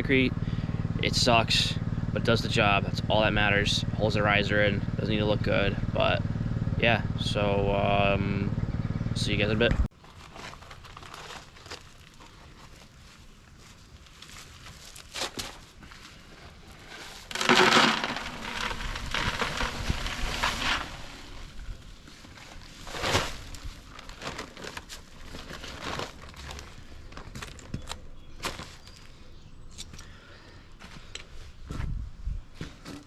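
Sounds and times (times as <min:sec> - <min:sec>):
paper bag crinkling: 0:10.0 - 0:15.8, 0:16.7 - 0:27.8.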